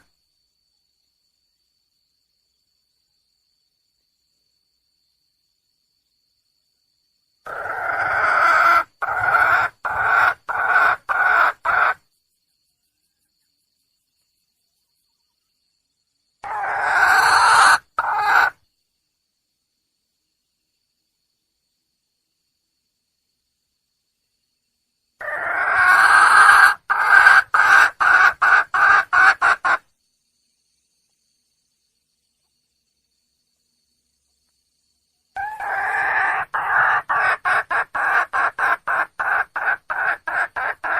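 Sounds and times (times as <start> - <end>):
hen calling: 7.5 - 12.0, 35.4 - 40.9.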